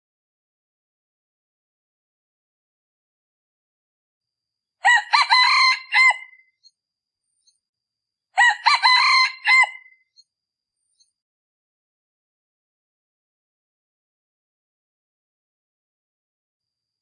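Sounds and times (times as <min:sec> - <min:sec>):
rooster crowing: 0:04.8 - 0:06.4, 0:08.4 - 0:10.0.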